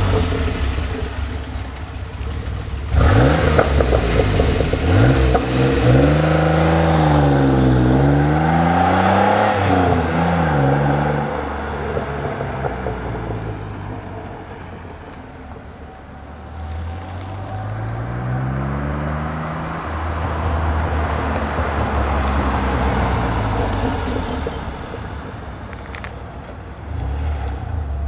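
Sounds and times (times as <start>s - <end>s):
car exhaust while driving: 0.0s - 28.0s.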